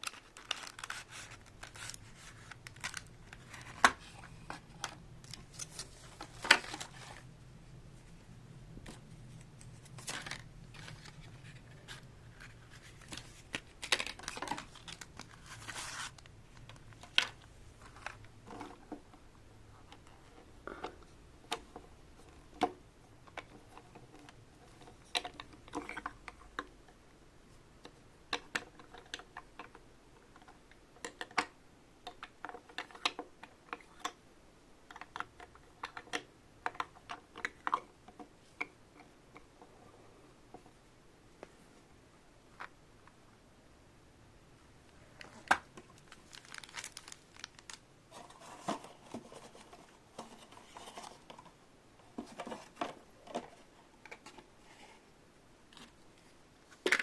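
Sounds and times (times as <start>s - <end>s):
plastic pieces clicking: 0.0s - 5.7s, 45.3s - 47.8s
plastic rustling: 0.0s - 7.3s, 8.8s - 18.9s, 45.0s - 51.5s.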